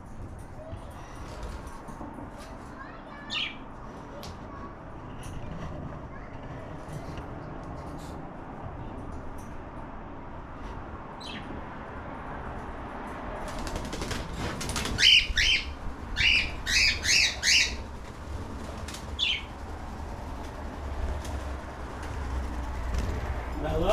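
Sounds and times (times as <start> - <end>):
cockatiel chirping: 15.0 - 17.8.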